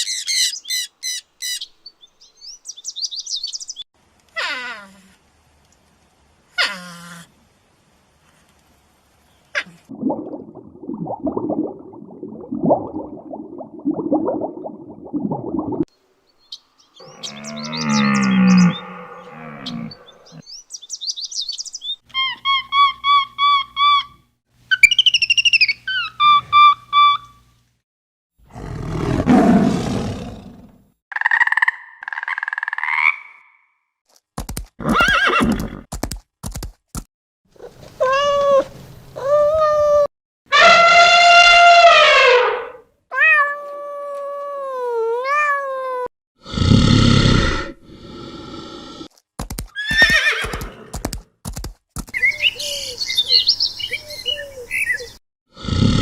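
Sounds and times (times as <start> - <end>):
quick chirping calls: 0.0 - 3.8, 19.6 - 22.4, 52.0 - 55.2
deep animal roar: 17.0 - 20.4, 28.5 - 30.8
high quivering animal call: 17.0 - 20.4
loud harsh animal call: 40.5 - 42.8.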